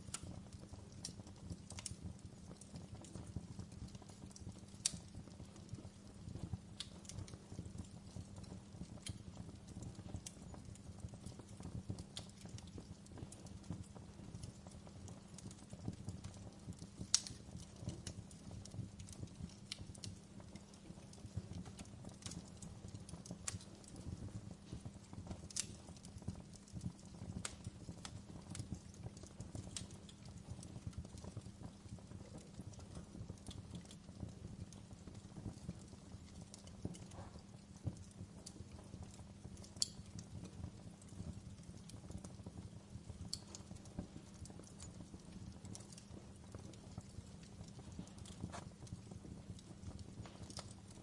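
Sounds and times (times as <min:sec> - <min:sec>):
wood fire crackling: 0:00.0 - 0:51.0.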